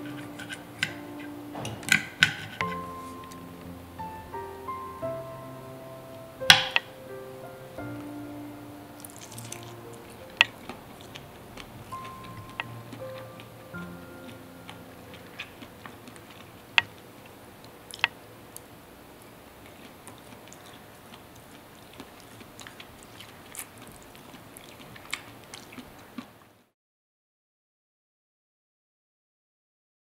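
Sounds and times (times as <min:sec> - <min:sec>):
chewing sausage: 0:09.0 - 0:13.5, 0:17.9 - 0:26.7.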